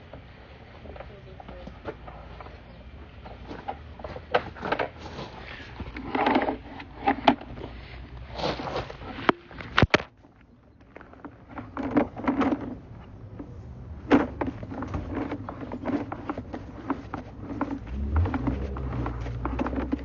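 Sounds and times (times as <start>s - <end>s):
low steady hum: 12.3s - 20.0s.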